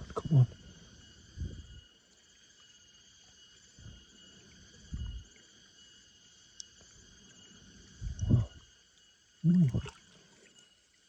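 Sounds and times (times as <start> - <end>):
insects buzzing: 0.0 - 11.0
dull low thumps: 8.0 - 8.6.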